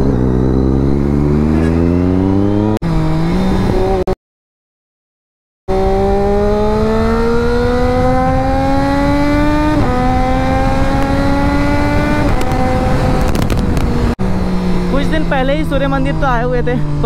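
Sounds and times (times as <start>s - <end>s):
motorcycle engine accelerating: 0.0s - 4.2s, 5.7s - 17.0s
motorcycle gear upshifts: 9.2s - 14.1s.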